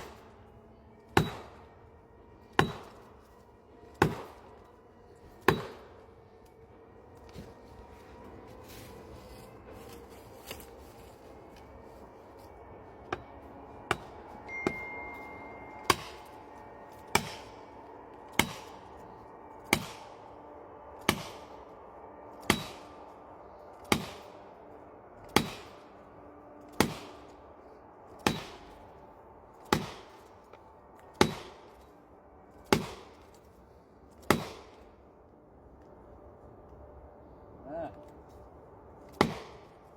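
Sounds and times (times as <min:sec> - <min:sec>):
axe chopping wood: 0:01.2 - 0:01.5, 0:02.6 - 0:03.0, 0:04.0 - 0:04.3, 0:05.4 - 0:05.8, 0:15.8 - 0:16.2, 0:17.1 - 0:17.5, 0:18.4 - 0:18.7, 0:19.7 - 0:20.0, 0:23.9 - 0:24.2, 0:25.3 - 0:25.7, 0:26.8 - 0:27.1, 0:28.2 - 0:28.5, 0:29.6 - 0:30.1, 0:31.1 - 0:31.6, 0:32.7 - 0:33.1, 0:34.2 - 0:34.7, 0:39.1 - 0:39.6.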